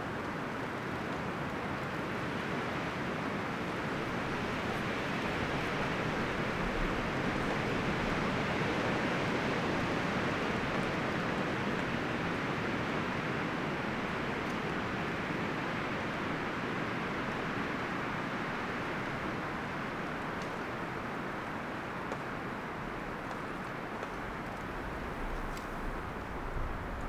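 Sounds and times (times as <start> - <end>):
wind rustling tree leaves: 0.4 - 27.0.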